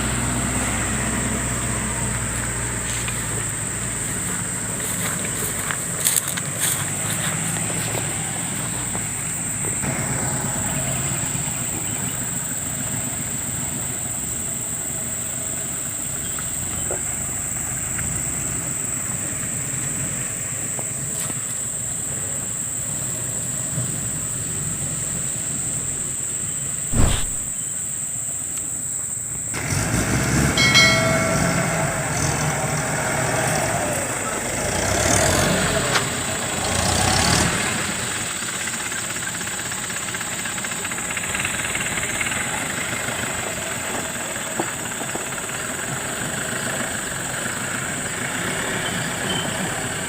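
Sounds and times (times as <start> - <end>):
vehicle engine running: 0.0 - 27.6, 29.5 - 50.0
sharp knock: 26.9 - 27.6
high-pitched drone: 30.6 - 32.8.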